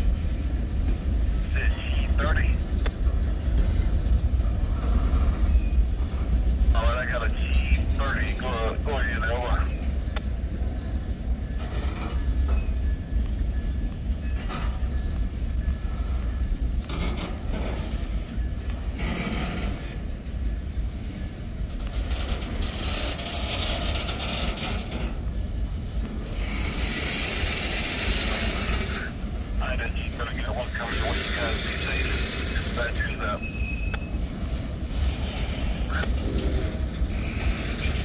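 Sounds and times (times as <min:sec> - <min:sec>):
freight train rumbling past: 0:00.0 - 0:38.0
wheels clicking over rails: 0:09.7 - 0:29.6, 0:30.8 - 0:38.0.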